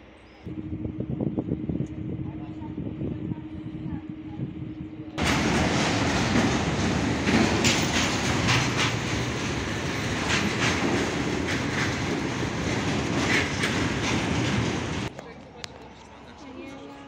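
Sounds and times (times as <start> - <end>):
freight train rumbling past: 5.1 - 15.1
wheels clicking over rail joints: 5.2 - 15.2.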